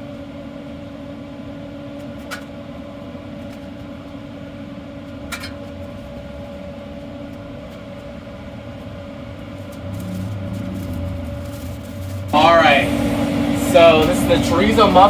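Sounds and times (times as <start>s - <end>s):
mechanical hum of equipment: 0.0s - 15.0s
low rumble: 9.5s - 15.0s.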